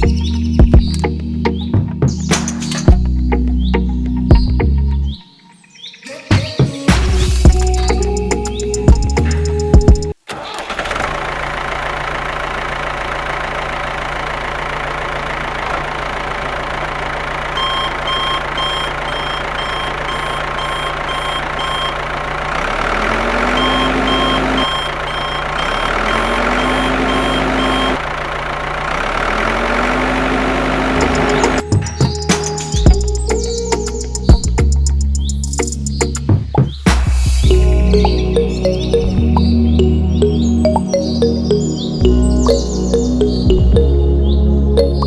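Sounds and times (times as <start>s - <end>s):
engine revving: 6.9s - 34.4s
quick evenly spaced beeps: 17.6s - 22.0s, 23.5s - 28.0s.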